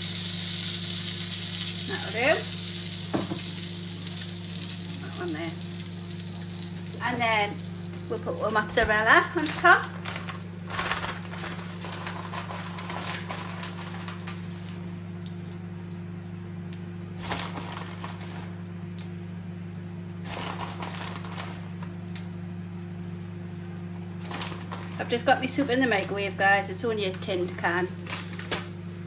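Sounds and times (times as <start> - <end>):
butter sizzling in a frying pan: 0.0 - 8.4.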